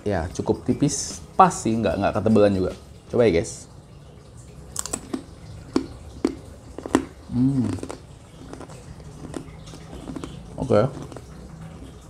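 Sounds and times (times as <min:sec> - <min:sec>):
crunchy chips crunching: 0:04.8 - 0:12.0
person humming mm: 0:07.3 - 0:07.9.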